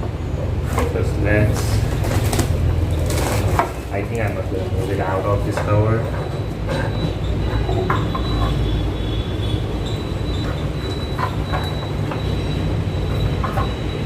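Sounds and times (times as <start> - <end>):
plastic packaging crinkling: 1.5 - 4.4.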